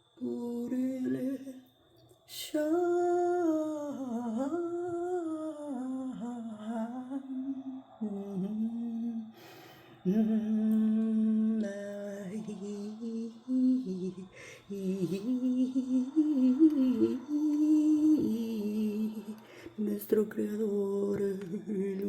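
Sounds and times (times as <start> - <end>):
woman humming: 10.0 - 22.0.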